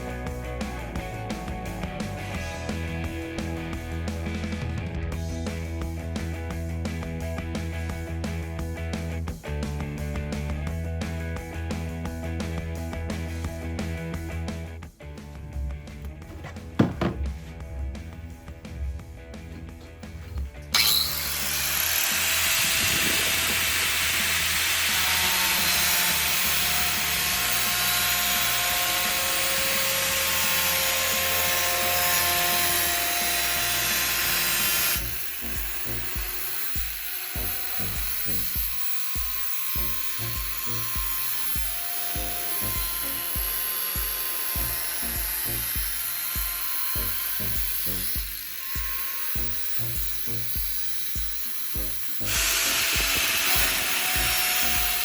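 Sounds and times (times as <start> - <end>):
power tool rasping wood: 15.9 - 17.5, 19.4 - 55.0.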